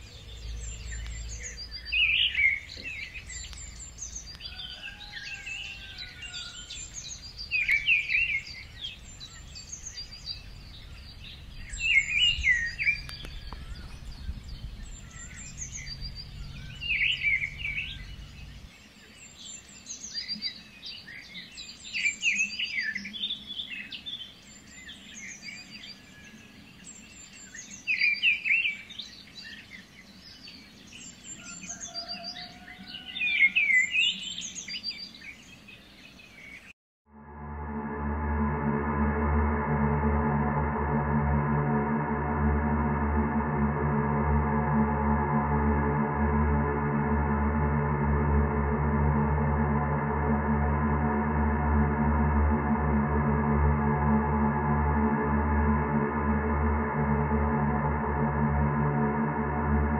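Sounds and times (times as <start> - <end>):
low rumble: 0.0 - 4.6, 5.4 - 18.8, 37.1 - 59.9.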